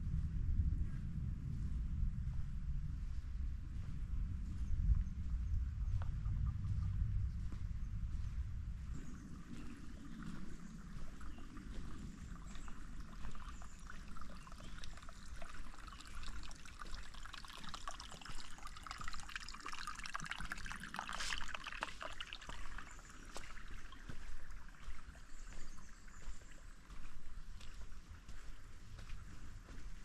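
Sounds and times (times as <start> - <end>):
creek water over rocks: 8.9 - 30.0.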